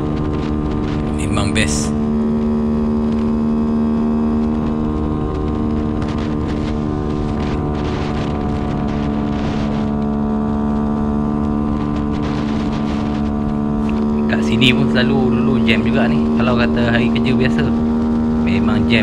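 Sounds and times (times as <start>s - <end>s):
motorcycle engine running: 0.0s - 19.0s
wind rushing over microphone: 4.4s - 16.3s.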